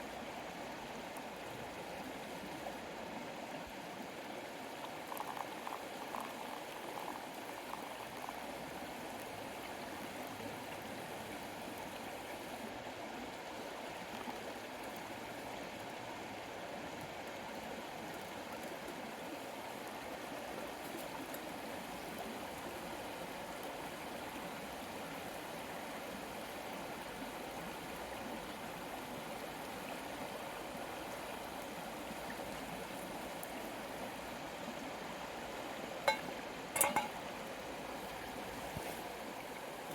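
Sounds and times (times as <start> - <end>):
river flowing: 30.4 - 39.9.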